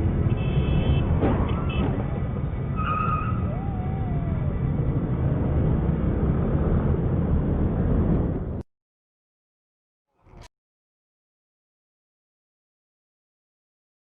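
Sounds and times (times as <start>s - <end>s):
car engine and road rumble: 0.0s - 8.6s.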